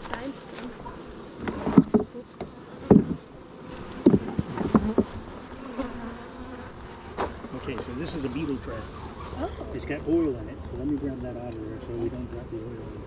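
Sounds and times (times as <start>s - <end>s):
honeybees buzzing: 0.0s - 13.0s
knocks on wooden hive boxes: 1.4s - 3.3s, 3.9s - 5.2s.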